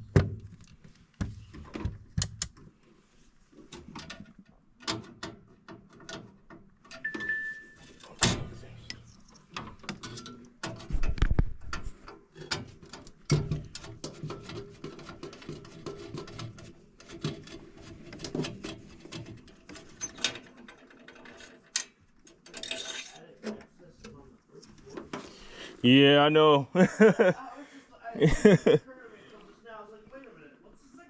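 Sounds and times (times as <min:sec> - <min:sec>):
hand tools clicking and clattering: 0:12.4 - 0:23.3.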